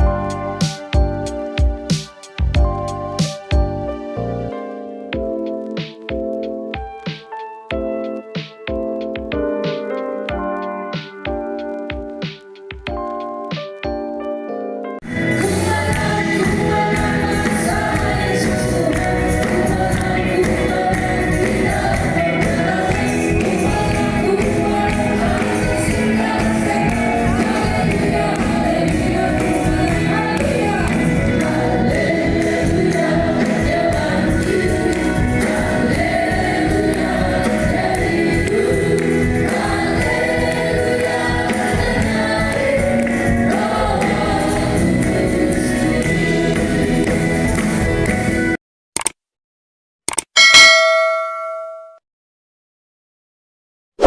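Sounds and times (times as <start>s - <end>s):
keyboard accompaniment: 0.0s - 48.6s
choir singing: 15.0s - 47.8s.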